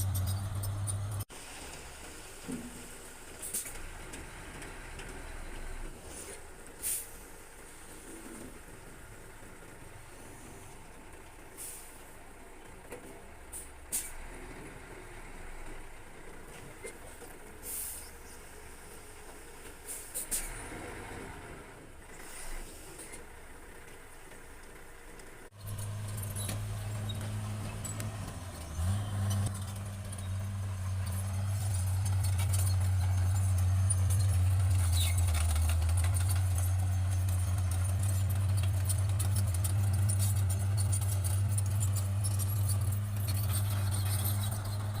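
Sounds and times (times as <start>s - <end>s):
bulldozer diesel engine running: 0.0s - 45.0s
metal clanking and rattling: 25.6s - 45.0s.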